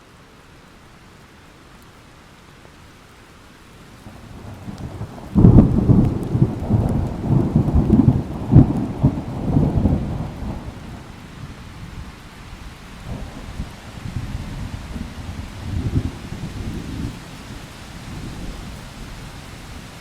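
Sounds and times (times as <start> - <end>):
rain hiss: 0.0 - 20.0
thunder rumbling: 4.0 - 12.2, 13.0 - 19.8.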